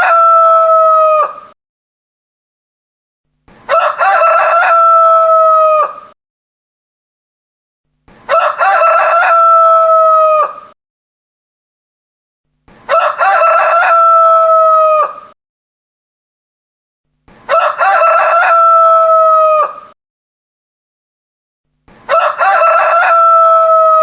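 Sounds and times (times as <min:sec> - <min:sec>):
rooster crowing: 0:00.0 - 0:01.5, 0:03.7 - 0:06.2, 0:08.3 - 0:10.8, 0:12.9 - 0:15.4, 0:17.5 - 0:20.0, 0:22.1 - 0:24.0.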